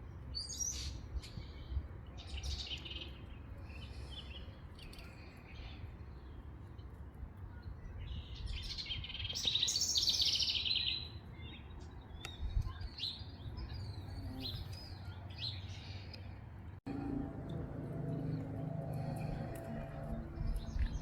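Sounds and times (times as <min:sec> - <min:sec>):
songbirds singing: 0:00.0 - 0:21.0
low rumble: 0:16.8 - 0:21.0.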